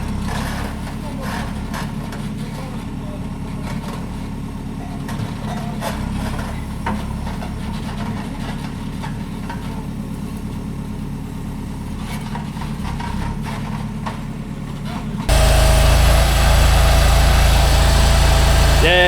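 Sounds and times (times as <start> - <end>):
heavy engine running at low revs: 15.3 - 19.0.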